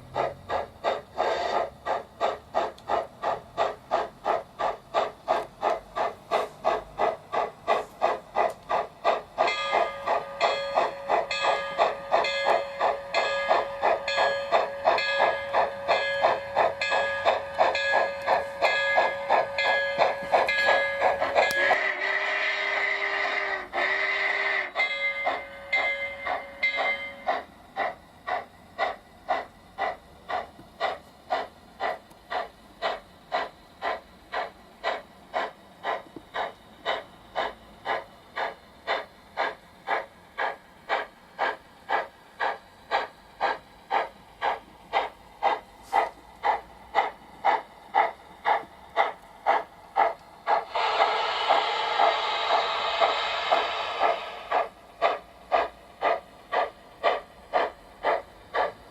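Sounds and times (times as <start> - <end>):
loud steam hiss: 0.0 - 58.9
steam chuffs: 0.0 - 58.9
steam locomotive whistle: 9.5 - 27.3, 50.7 - 54.5.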